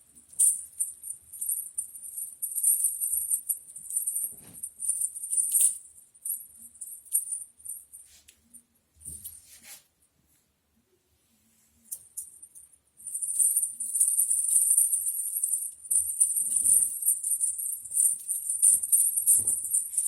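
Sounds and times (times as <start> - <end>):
cat toy bells jingling: 0.3 - 8.0, 12.2 - 20.0.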